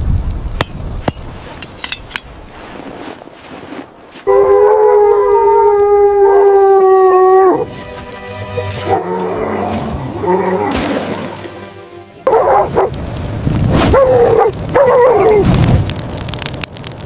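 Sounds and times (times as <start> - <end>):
background music: 6.1 - 13.0
dog barking and yelping: 12.2 - 13.0, 13.9 - 15.4.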